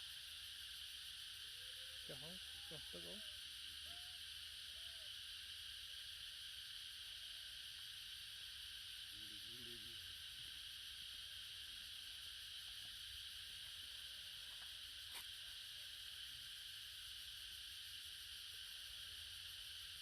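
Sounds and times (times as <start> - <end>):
insect chorus hissing: 0.0 - 20.0
faint voice-like call: 1.6 - 5.1.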